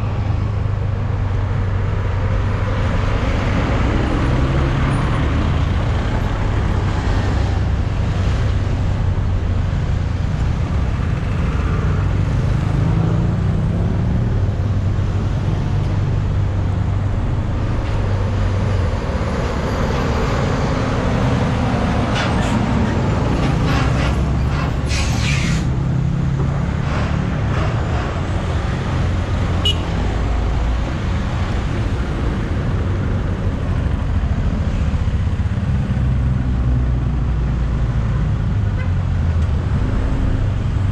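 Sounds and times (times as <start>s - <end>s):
heavy road traffic: 0.0s - 40.9s
brief high squeal: 24.9s - 25.7s.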